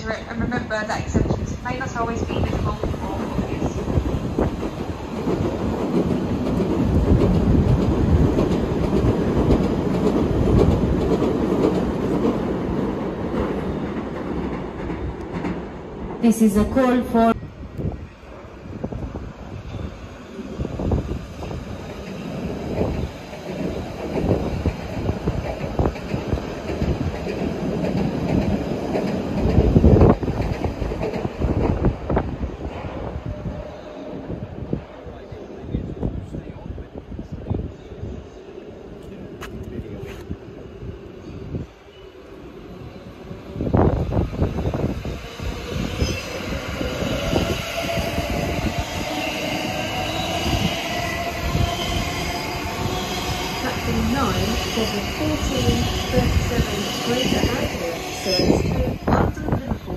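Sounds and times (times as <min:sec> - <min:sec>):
high wheel squeal: 0:45.8 - 0:48.0.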